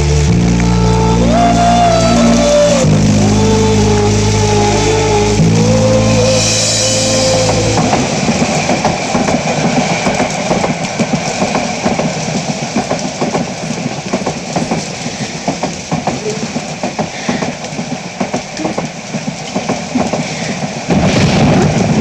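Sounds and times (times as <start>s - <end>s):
steady held tone: 0.0s - 9.0s
train wheels clattering over rails: 7.4s - 22.0s.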